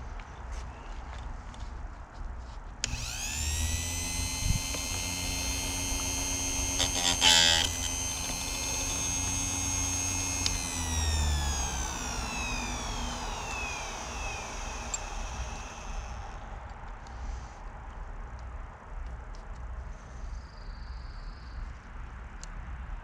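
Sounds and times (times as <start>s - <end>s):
grinding wheel grinding chain: 2.8s - 16.2s
sharpener motor whine: 2.8s - 16.4s.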